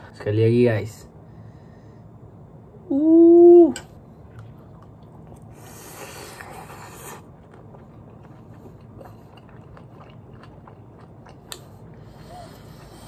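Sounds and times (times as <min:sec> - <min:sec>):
person chewing with wet mouth clicks: 0:06.4 - 0:12.0.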